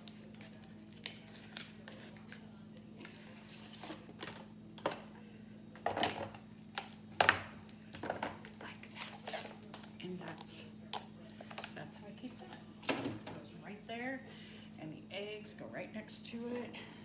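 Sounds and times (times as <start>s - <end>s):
refrigerator hum: 0.0s - 17.0s
packages knocking in refrigerator: 7.2s - 8.5s.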